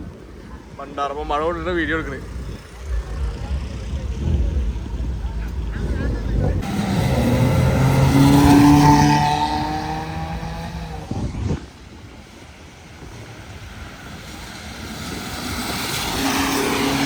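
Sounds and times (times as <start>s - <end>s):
car engine and exhaust: 0.0s - 17.0s
second car engine: 1.1s - 11.8s.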